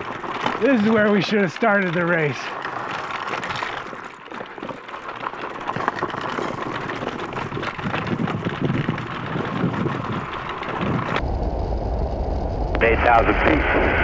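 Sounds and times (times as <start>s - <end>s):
small clicks and rattles: 0.0s - 11.2s
tyres crackling on gravel: 0.0s - 11.3s.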